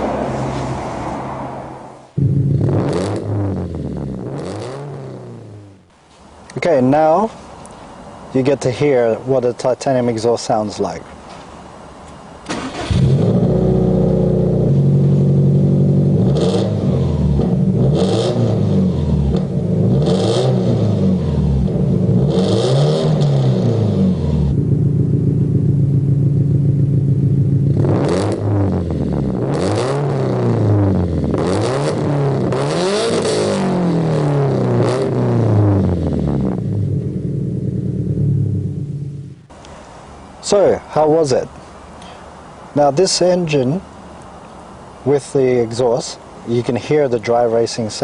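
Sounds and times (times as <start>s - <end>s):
car engine starting and revving: 0.0s - 5.9s, 12.4s - 39.5s.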